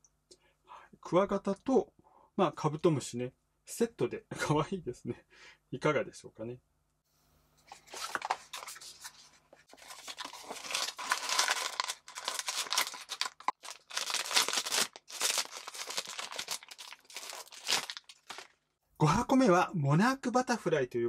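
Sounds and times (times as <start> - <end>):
tearing and crinkling of card and foil: 7.7 - 18.6.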